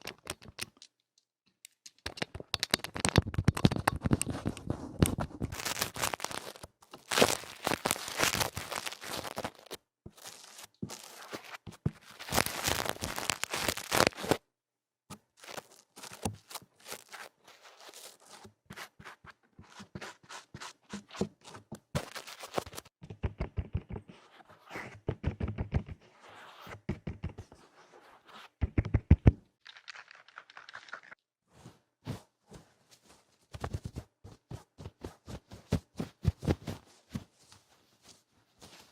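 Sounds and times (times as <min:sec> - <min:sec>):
scratching and rubbing on microphone: 0:03.1 - 0:14.4, 0:15.4 - 0:21.2, 0:22.0 - 0:29.2.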